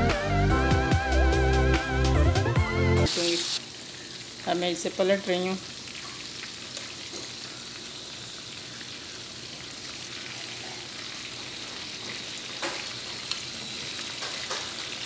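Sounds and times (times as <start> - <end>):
chicken sizzling in oil: 3.0 - 15.0.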